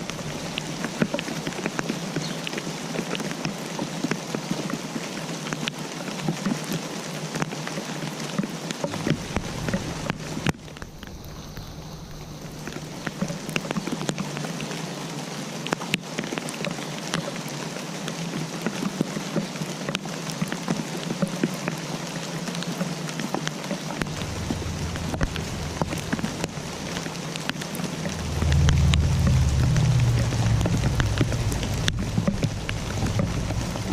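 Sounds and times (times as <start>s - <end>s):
raindrops ticking on a surface: 0.0s - 33.9s
low rumble: 8.9s - 13.7s, 24.0s - 33.9s.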